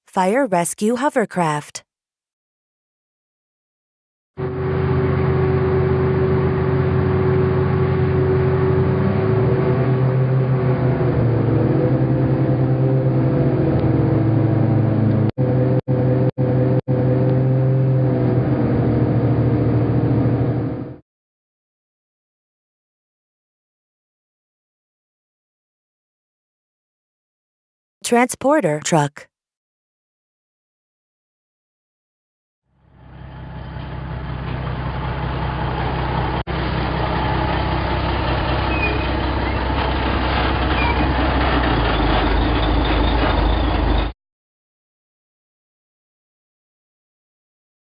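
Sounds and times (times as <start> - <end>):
hovercraft engine and fans droning: 4.4 - 15.3, 33.1 - 41.7.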